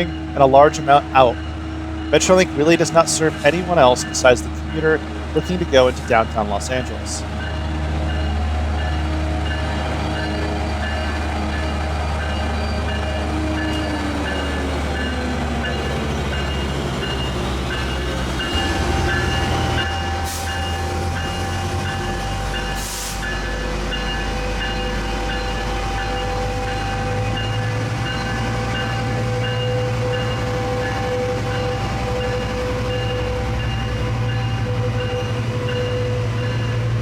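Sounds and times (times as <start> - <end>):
diesel locomotive engine running: 0.0 - 37.0
air hisses: 22.7 - 23.4.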